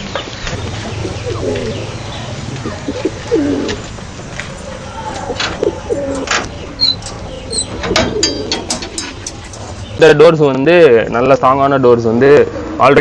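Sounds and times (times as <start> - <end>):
pigeons cooing: 0.5 - 10.0.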